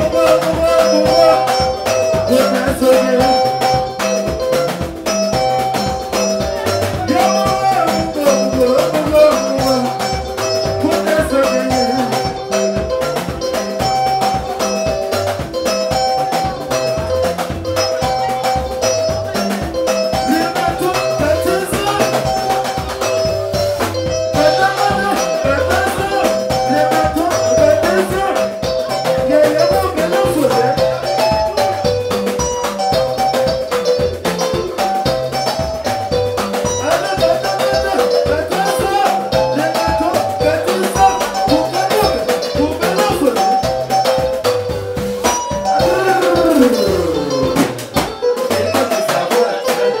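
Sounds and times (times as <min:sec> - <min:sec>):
person singing: 0:00.0 - 0:04.4, 0:06.4 - 0:14.8, 0:15.9 - 0:23.6, 0:24.3 - 0:32.2, 0:36.8 - 0:43.7, 0:45.5 - 0:50.0
band playing guitars and percussion: 0:00.0 - 0:50.0.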